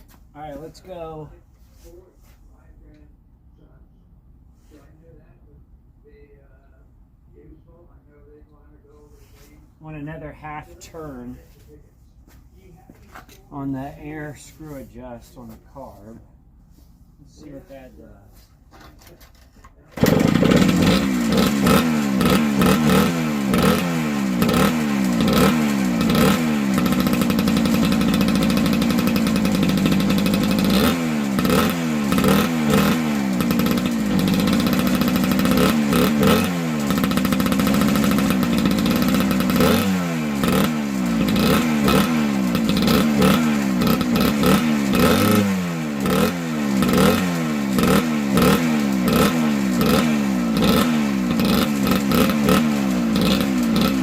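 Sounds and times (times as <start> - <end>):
two-stroke engine revving: 20.0 - 54.0.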